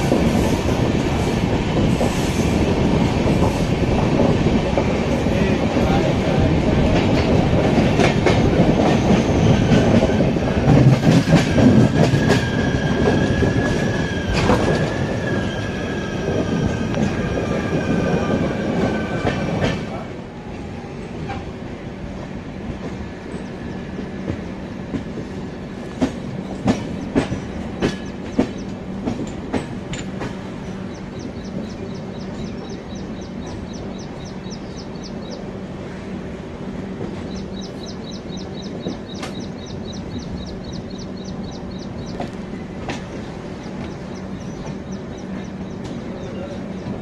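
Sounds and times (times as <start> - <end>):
train rumbling along track: 0.0 - 47.0
wheels clacking over rail joints: 26.0 - 35.1.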